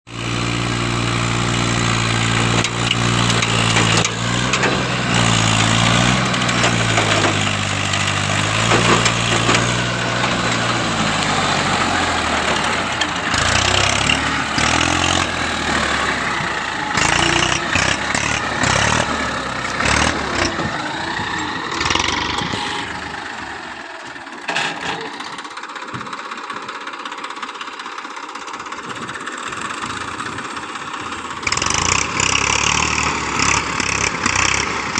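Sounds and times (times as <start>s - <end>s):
diesel tractor engine running: 0.1s - 34.9s
engine knocks: 2.2s - 19.2s, 24.4s - 32.2s.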